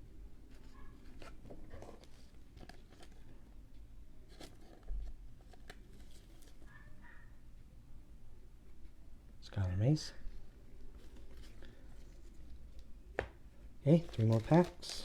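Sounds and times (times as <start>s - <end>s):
cards and wrappers rustling: 0.4s - 3.4s, 4.2s - 6.7s, 10.8s - 12.9s, 13.8s - 15.0s.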